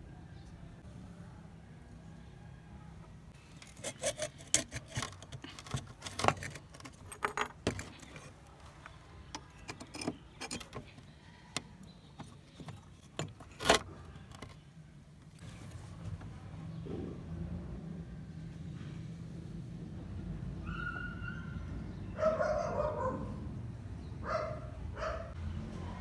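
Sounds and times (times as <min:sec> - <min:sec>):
small metal parts clinking: 0:03.5 - 0:11.1.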